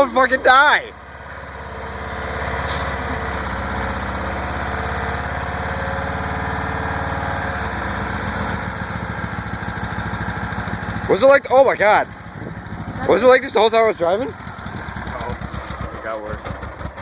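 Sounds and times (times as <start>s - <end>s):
car engine knocking: 7.5s - 17.0s.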